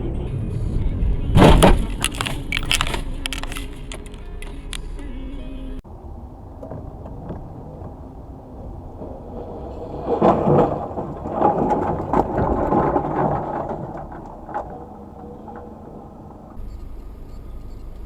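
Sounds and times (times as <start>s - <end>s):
road noise: 0.0s - 18.0s
vehicle collision bangs and crunching: 1.3s - 4.9s, 6.4s - 16.6s.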